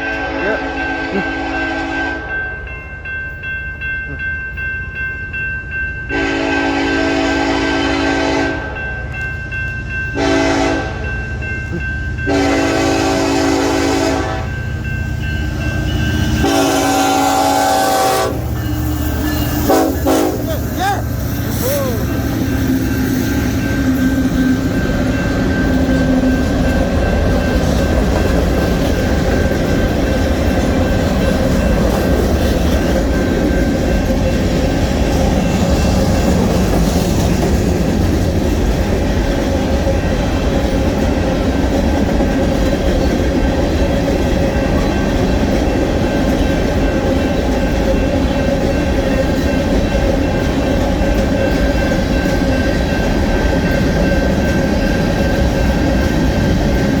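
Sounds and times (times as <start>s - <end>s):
steel wheels on rails: 0.0s - 57.0s.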